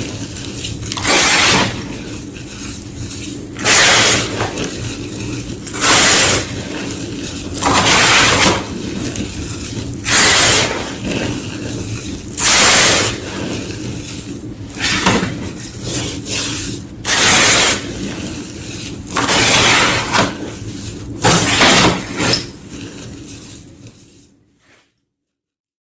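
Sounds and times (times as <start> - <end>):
crumbling crackle: 0.0 - 24.2
chalk being crunched: 0.0 - 24.9.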